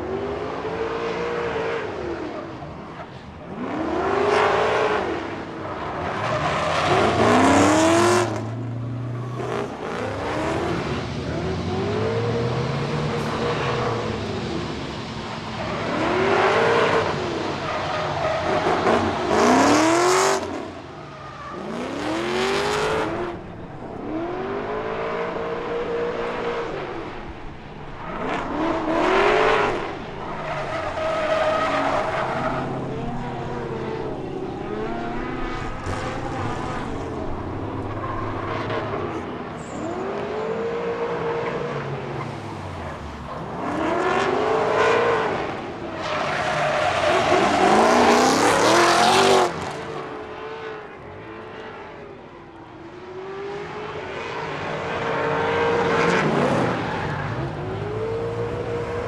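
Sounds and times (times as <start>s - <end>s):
car engine revving: 0.0s - 51.8s
tyres squealing: 28.0s - 40.1s.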